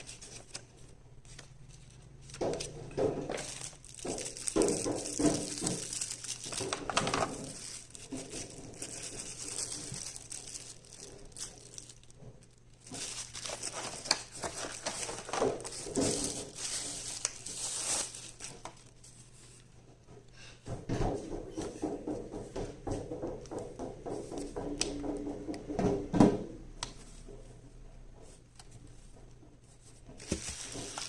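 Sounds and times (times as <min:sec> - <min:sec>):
packaging crinkling and rustling: 0:00.0 - 0:19.6, 0:30.1 - 0:31.0.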